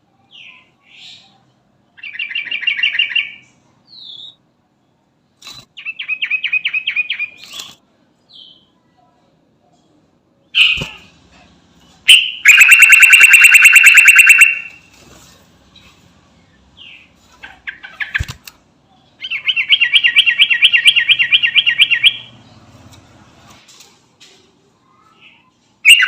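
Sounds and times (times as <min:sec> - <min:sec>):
bulbul trilling song: 0:12.1 - 0:14.8, 0:19.2 - 0:22.4.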